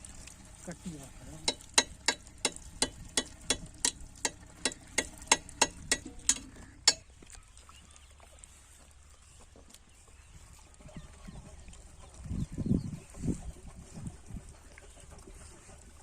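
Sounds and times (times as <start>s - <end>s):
sharp knocks: 1.5s - 7.1s.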